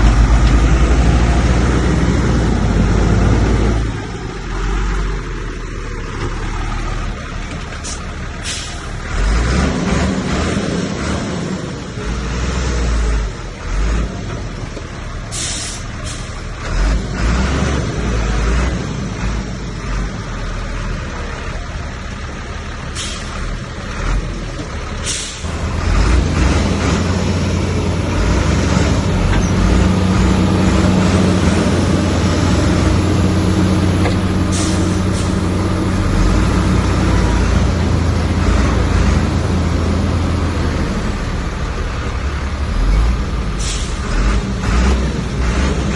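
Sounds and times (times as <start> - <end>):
heavy diesel engine running: 0.0 - 45.9.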